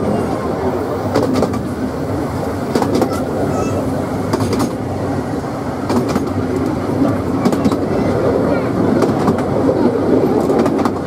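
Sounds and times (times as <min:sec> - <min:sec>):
wheels rumbling on rail: 0:00.0 - 0:11.0
wheels clicking over rail joints: 0:02.6 - 0:04.8, 0:05.8 - 0:11.0.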